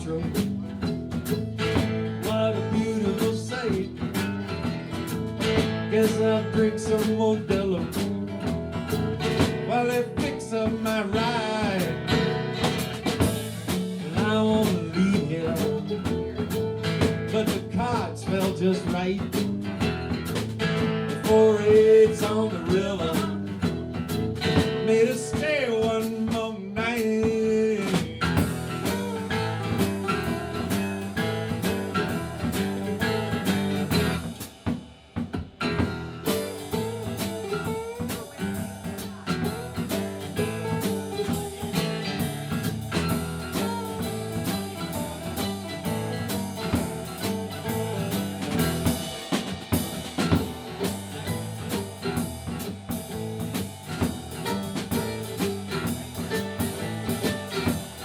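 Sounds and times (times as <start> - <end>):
blues rock band playing: 0.0 - 58.0.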